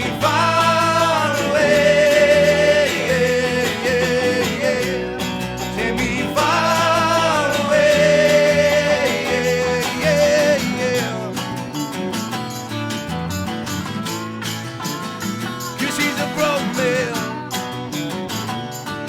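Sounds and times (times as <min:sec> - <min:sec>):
rock and roll song with singing: 0:00.0 - 0:11.9, 0:15.8 - 0:17.9.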